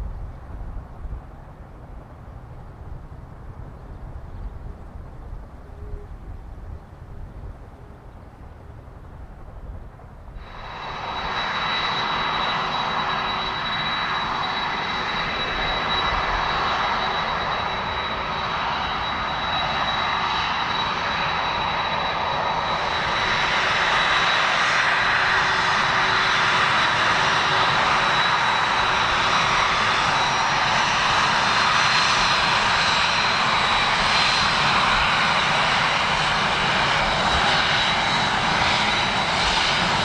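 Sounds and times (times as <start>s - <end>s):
jet engines at high power: 8.6s - 40.0s.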